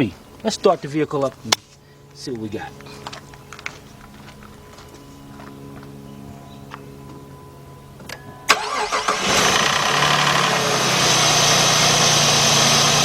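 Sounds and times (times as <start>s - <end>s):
ignition click: 8.5s - 9.2s
car engine starting and idling: 8.5s - 13.0s.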